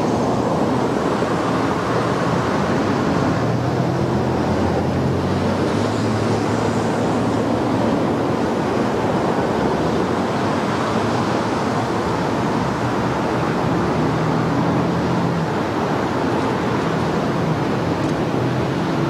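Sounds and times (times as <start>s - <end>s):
faint diesel engine hum: 0.0s - 19.0s.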